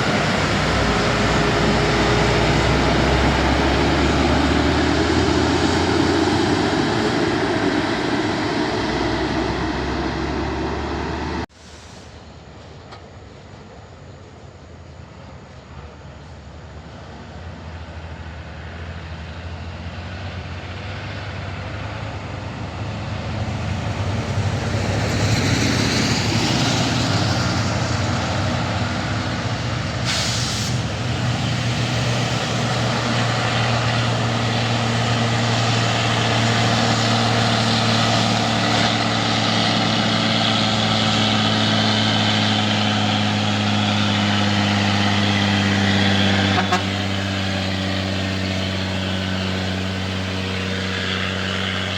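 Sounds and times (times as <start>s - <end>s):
diesel truck engine: 0.0s - 51.9s
sharp air hiss: 11.5s - 12.3s, 30.0s - 31.0s.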